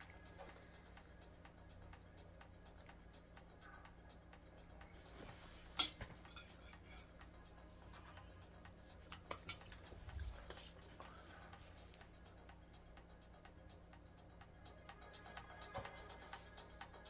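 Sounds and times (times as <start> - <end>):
faint background music: 0.0 - 17.0
tableware clinking: 5.2 - 7.2, 9.3 - 10.7.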